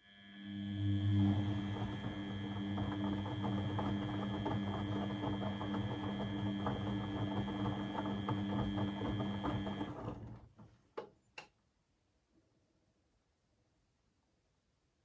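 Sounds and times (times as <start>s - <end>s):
washing machine running: 0.5s - 10.7s.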